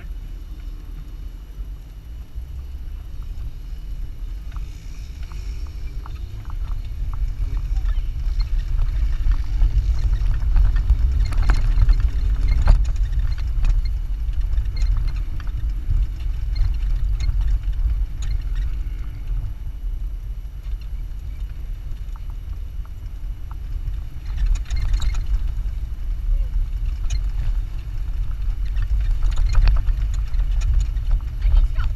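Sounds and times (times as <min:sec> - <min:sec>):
light rattles and clicks: 0:00.0 - 0:31.9
vehicle rumbling over sand: 0:00.0 - 0:31.9.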